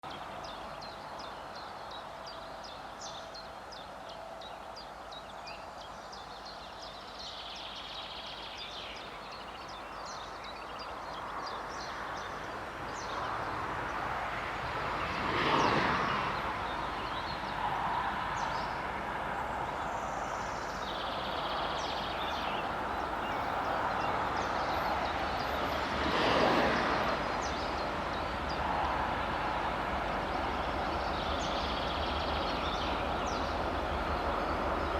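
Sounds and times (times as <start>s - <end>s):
birds chirping: 19.7s - 25.8s
diesel locomotive rumble: 27.0s - 34.9s.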